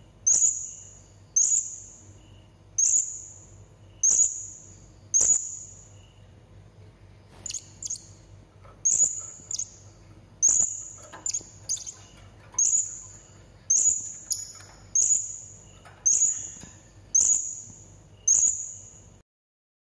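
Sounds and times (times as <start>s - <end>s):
parrot high-pitched calls: 8.8s - 9.8s, 10.4s - 17.7s.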